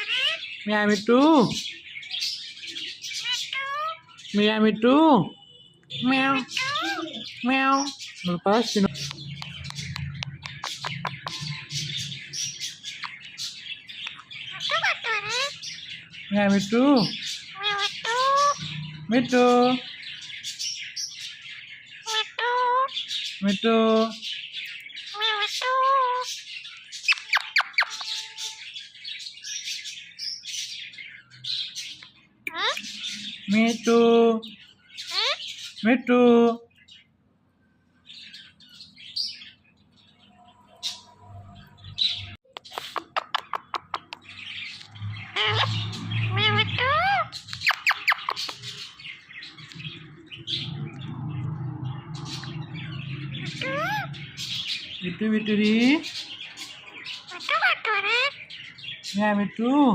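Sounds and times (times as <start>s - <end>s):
high chattering squawks: 0.0s - 0.6s, 2.9s - 4.4s, 5.2s - 15.8s, 17.0s - 20.4s, 32.4s - 33.5s, 40.6s - 51.0s, 52.1s - 55.0s, 55.9s - 58.4s
parrot chirping: 0.0s - 35.9s, 38.2s - 59.9s
parakeet calling: 0.0s - 36.0s, 38.0s - 59.9s
parrot whistling: 44.8s - 48.8s, 52.4s - 54.2s.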